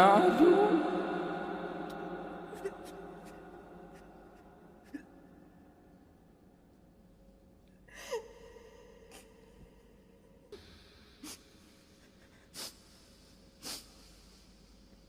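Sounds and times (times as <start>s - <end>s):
person reciting phrases: 0.0s - 2.9s
short sharp sniffs: 12.5s - 14.5s.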